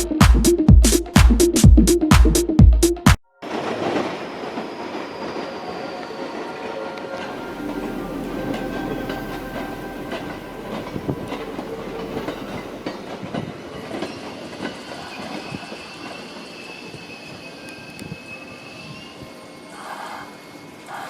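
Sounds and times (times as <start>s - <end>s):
train wheels clicking on rails: 3.5s - 18.0s
high wheel squeal: 4.3s - 13.4s, 14.4s - 21.0s.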